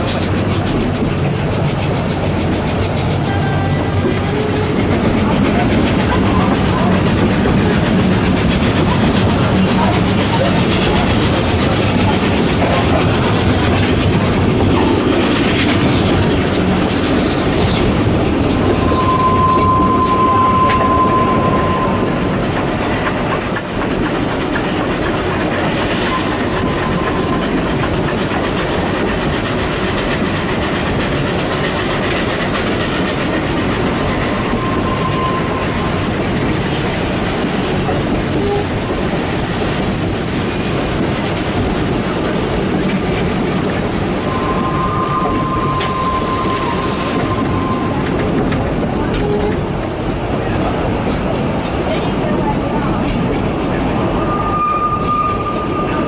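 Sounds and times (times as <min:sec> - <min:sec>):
train wheels clickety-clack: 0:00.0 - 0:56.0
high wheel squeal: 0:15.9 - 0:23.1, 0:25.8 - 0:27.6, 0:33.9 - 0:36.2, 0:44.2 - 0:48.2, 0:54.1 - 0:56.0.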